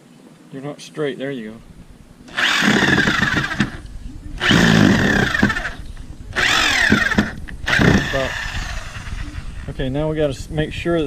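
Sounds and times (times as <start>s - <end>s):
cordless drill driving screw into wood: 2.3s - 9.7s.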